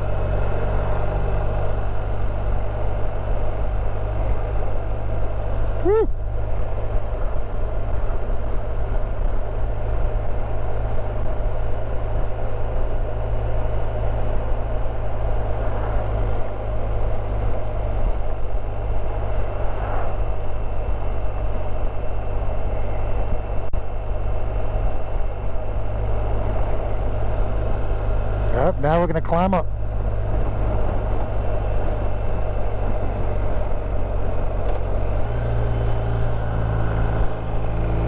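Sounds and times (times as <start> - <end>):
wind rumbling on microphone: 0.0 - 28.6, 29.7 - 38.0
motorcycle engine running: 0.0 - 38.0.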